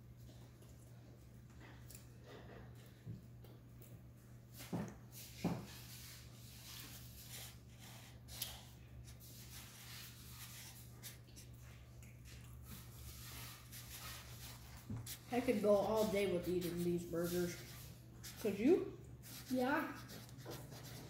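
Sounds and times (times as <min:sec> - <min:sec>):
steady low hum: 0:00.0 - 0:21.0
chewing food: 0:10.9 - 0:13.2.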